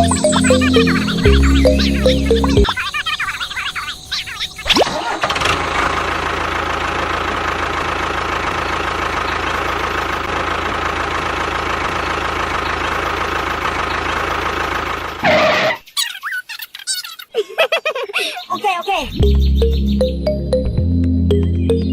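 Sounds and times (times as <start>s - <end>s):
engine idling: 0.0s - 2.8s, 5.0s - 15.8s.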